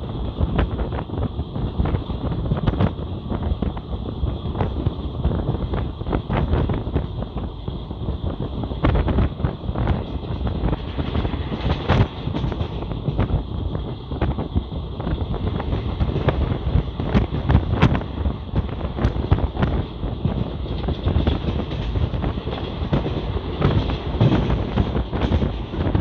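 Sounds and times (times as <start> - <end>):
train rumbling at speed: 0.0 - 26.0
wind buffeting microphone: 0.0 - 26.0
wheels clicking and knocking: 8.8 - 26.0.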